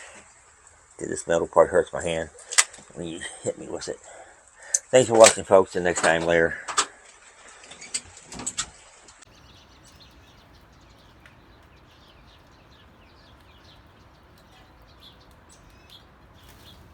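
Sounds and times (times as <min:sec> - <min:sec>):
quick bird chirps: 0:09.3 - 0:16.9.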